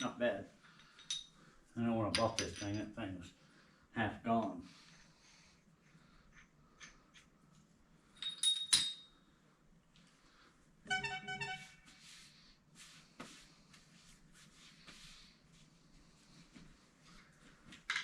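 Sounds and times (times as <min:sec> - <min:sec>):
metal parts clinking: 0:00.8 - 0:01.4, 0:08.1 - 0:09.2.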